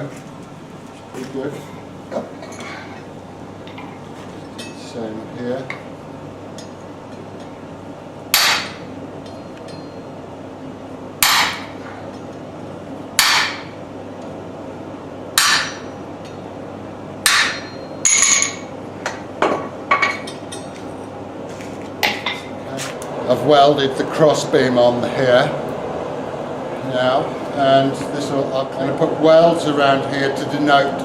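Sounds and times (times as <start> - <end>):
hammer striking metal: 8.3 - 10.0, 11.2 - 11.8, 13.2 - 13.8, 15.4 - 15.9, 17.2 - 20.7.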